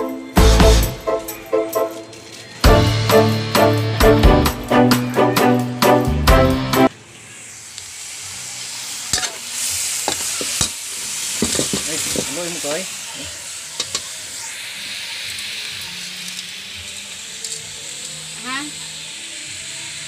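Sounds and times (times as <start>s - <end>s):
meat sizzling in a wok: 2.2s - 4.5s, 6.9s - 20.0s.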